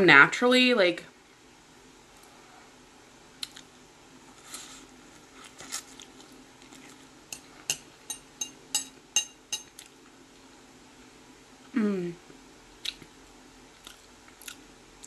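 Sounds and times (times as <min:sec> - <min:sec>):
chewing noodles: 0:05.2 - 0:07.2
mouth smacks and clicks: 0:12.8 - 0:13.1.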